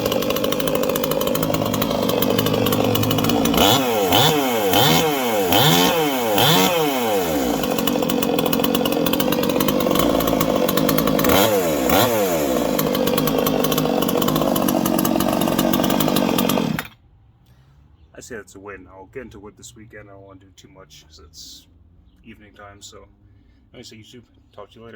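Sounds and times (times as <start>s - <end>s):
chainsaw revving: 0.0s - 17.0s.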